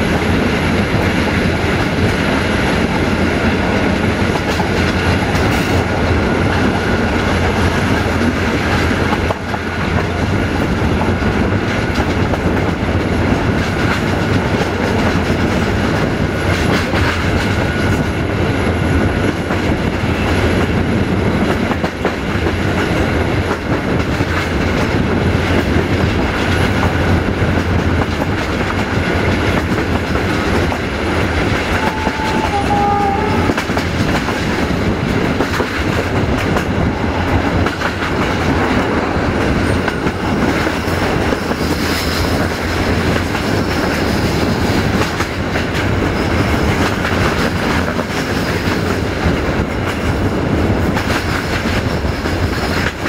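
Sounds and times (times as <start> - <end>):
train wheels rumbling and rattling: 0.0 - 53.0
brief high tone: 31.8 - 33.6.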